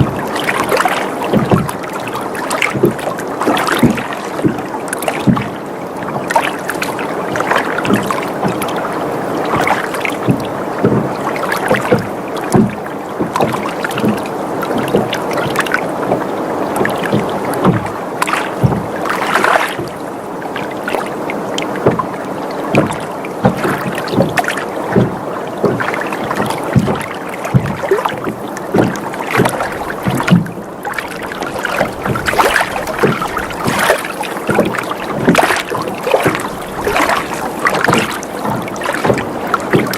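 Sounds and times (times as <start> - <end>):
boat creaking: 0.0 - 39.9
water lapping against hull: 0.0 - 39.9
water splashes and knocks: 0.0 - 39.9.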